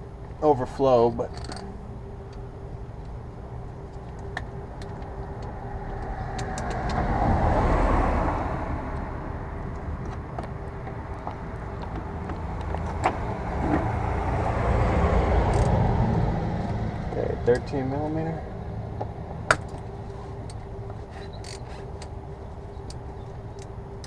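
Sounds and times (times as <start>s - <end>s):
low steady rumble: 0.0s - 24.0s
vehicle passing by: 4.6s - 20.6s.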